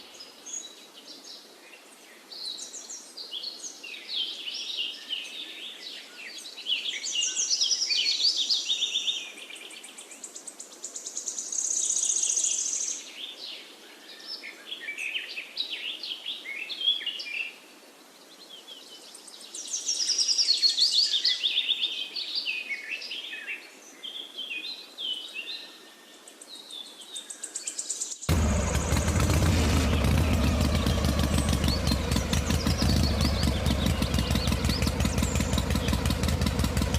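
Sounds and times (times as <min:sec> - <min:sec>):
songbird chirps and trills: 0:00.0 - 0:36.9
motor hum: 0:28.3 - 0:36.9.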